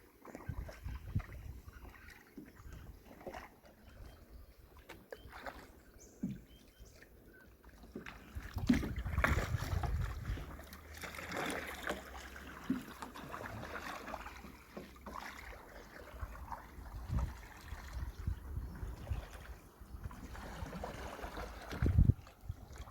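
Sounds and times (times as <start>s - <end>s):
paddles splashing in water: 0.0s - 22.9s
wind on microphone: 0.4s - 1.8s, 8.4s - 10.5s, 16.8s - 22.9s.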